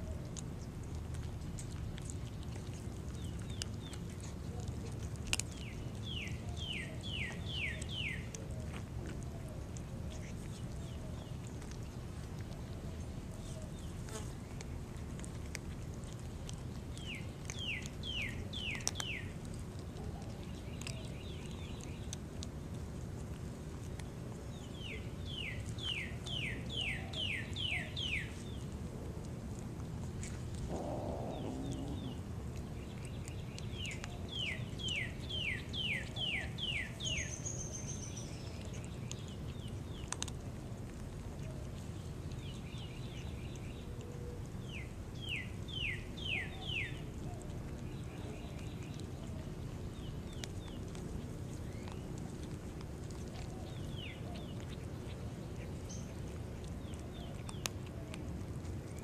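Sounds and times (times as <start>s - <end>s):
steady low background hum: 0.0s - 59.0s
songbird singing: 5.4s - 9.6s, 16.9s - 22.2s, 23.9s - 28.7s, 30.7s - 40.3s, 41.5s - 52.5s, 53.4s - 58.2s.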